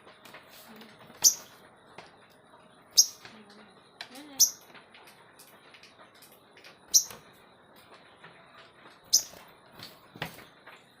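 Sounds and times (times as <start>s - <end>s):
songbird chirping: 2.9s - 3.3s, 9.1s - 9.4s.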